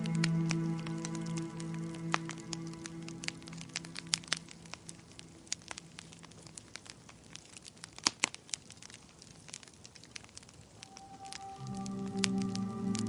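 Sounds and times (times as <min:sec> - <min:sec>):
soft background music: 0:00.0 - 0:06.6, 0:10.8 - 0:13.0
wood fire crackling: 0:00.0 - 0:13.0.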